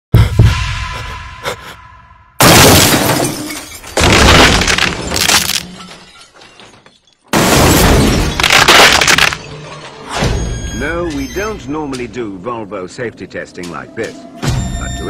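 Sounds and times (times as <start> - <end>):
car crash impacts: 2.4 - 9.5
glass shattering: 2.4 - 10.6.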